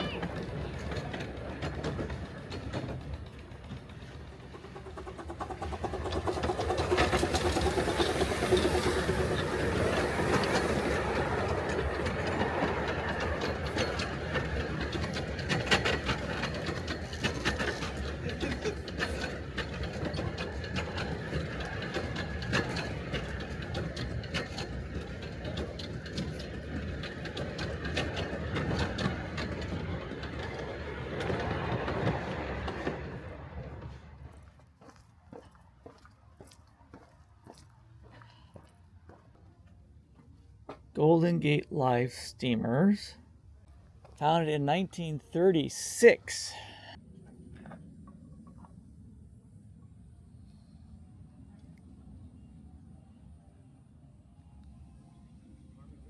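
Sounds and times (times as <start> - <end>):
miniature train rumbling: 0.0 - 36.0
wheels clicking on rails: 0.0 - 39.5.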